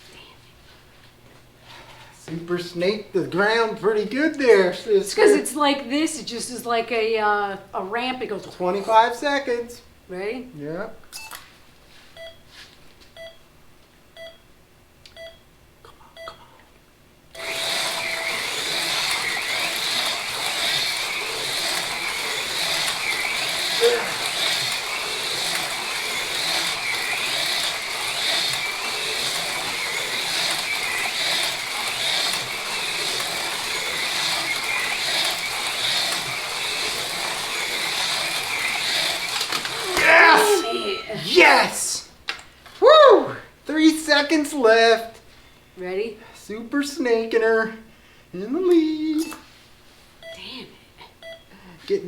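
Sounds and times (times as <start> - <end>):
race timer countdown beeps: 12.2 - 12.4, 13.2 - 13.4, 14.2 - 14.4, 15.1 - 15.4, 16.2 - 16.4, 40.4 - 41.3, 50.2 - 50.5, 51.2 - 51.5
slot car motors whining: 17.3 - 42.1
long start tone: 39.8 - 41.9.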